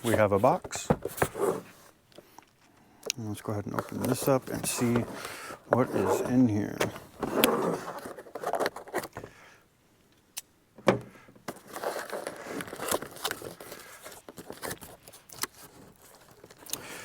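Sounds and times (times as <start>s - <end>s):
cardboard rustling and scraping: 0.0s - 2.0s, 3.4s - 9.3s, 11.5s - 17.0s.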